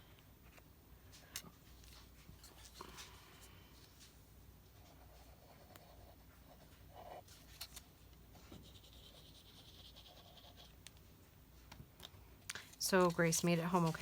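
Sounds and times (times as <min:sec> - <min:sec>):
scratchy rubbing on paper: 0:08.4 - 0:10.7, 0:12.9 - 0:14.0.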